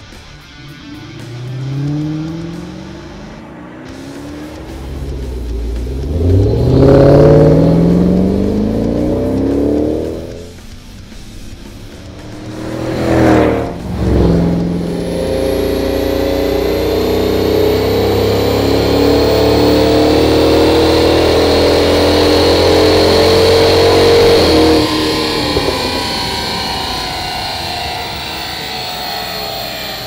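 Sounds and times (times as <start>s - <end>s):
vee eight engine surging: 0.0s - 30.0s.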